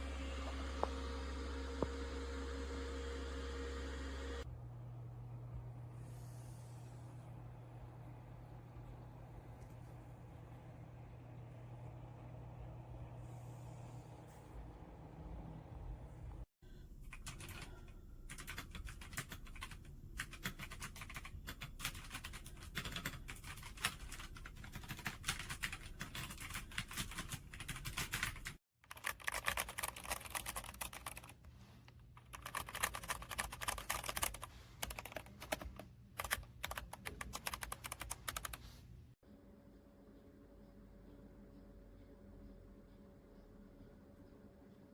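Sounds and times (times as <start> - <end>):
mechanical keyboard typing: 17.1 - 31.4, 32.2 - 38.6.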